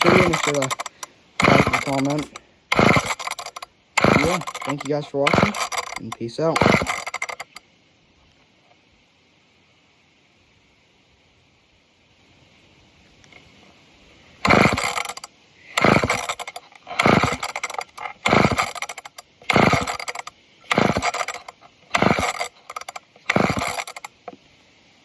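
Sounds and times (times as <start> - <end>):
chainsaw recoil starter pulls: 0.0 - 7.6, 14.4 - 24.4.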